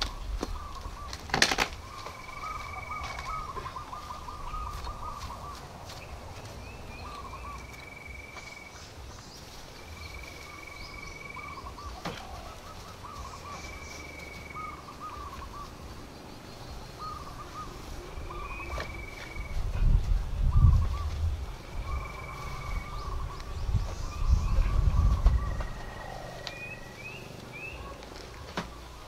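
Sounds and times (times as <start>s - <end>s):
bird warbling call: 0.0s - 5.7s, 10.0s - 15.9s, 16.8s - 19.6s, 21.8s - 28.0s.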